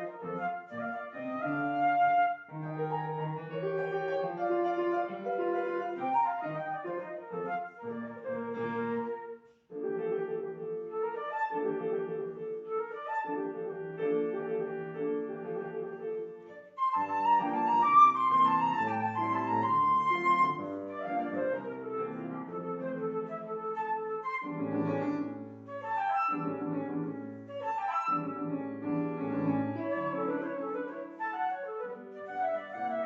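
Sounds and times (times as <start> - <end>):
classical piano piece: 0.0 - 33.0.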